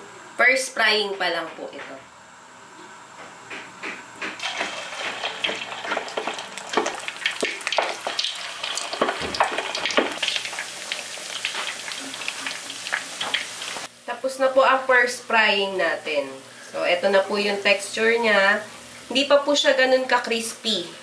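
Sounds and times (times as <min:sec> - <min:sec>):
pork frying in hot oil: 0:04.1 - 0:20.9.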